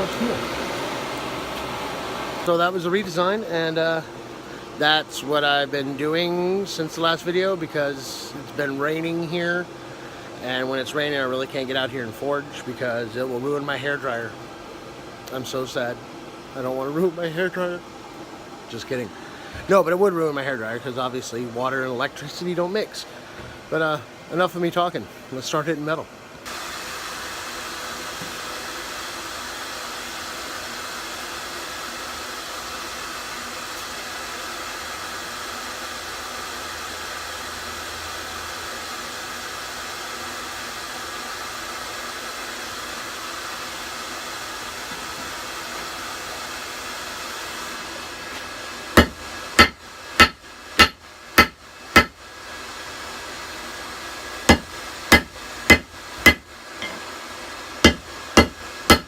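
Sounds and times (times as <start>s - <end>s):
hairdryer blowing air: 0.0s - 4.9s, 26.4s - 59.0s
hammer striking hot metal: 49.0s - 52.2s, 54.5s - 57.0s, 57.8s - 59.0s.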